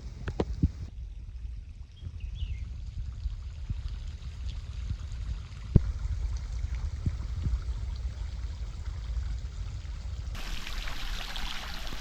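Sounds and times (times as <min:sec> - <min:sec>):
low rumble: 0:00.0 - 0:12.0
running water splashing: 0:10.4 - 0:12.0.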